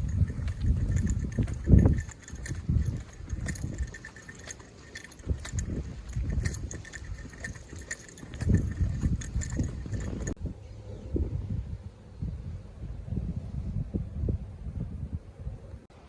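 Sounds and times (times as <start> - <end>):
footsteps with dull thuds: 0.0 - 10.4.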